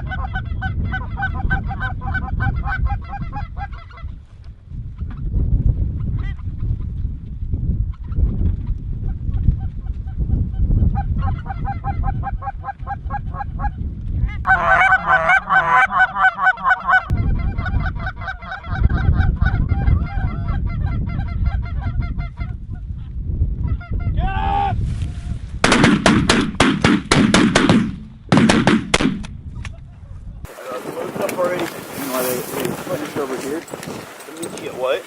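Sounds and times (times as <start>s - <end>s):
wind on microphone: 0.0s - 35.0s
geese honking: 14.5s - 21.4s
gunshots: 25.6s - 29.3s.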